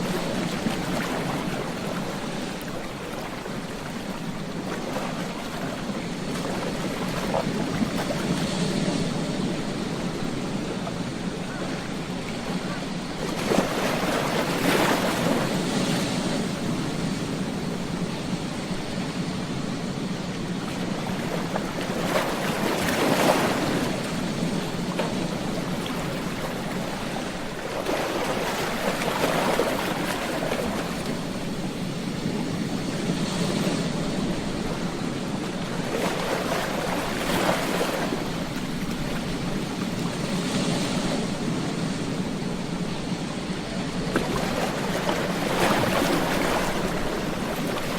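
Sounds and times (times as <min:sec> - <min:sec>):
ocean waves crashing: 0:00.0 - 0:47.9.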